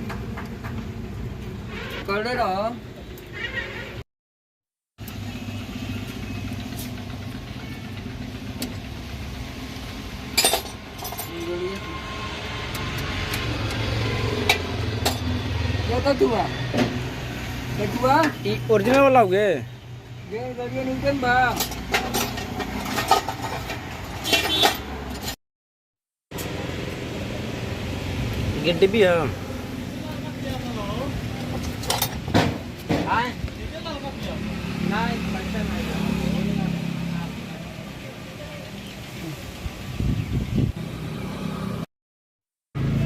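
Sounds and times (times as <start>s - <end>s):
three-wheeler engine idling: 5.0s - 11.7s
metal tools clinking and knocking: 10.3s - 11.9s, 21.5s - 25.4s, 31.4s - 32.5s.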